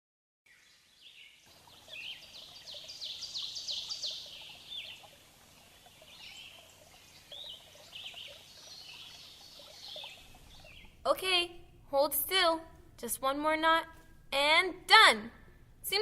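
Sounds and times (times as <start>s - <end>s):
birds chirping: 0.5s - 11.1s
faint steady hiss: 0.5s - 16.0s.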